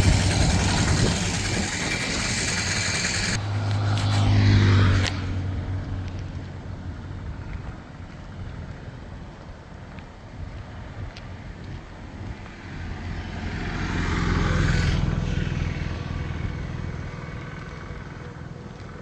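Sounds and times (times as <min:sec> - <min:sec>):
vehicle engine passing: 0:00.0 - 0:07.8, 0:12.4 - 0:19.0.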